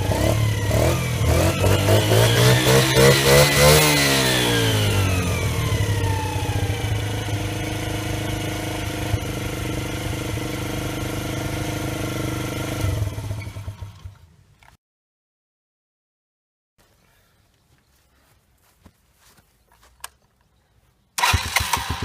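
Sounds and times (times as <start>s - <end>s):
motorcycle engine idling: 0.0s - 14.2s.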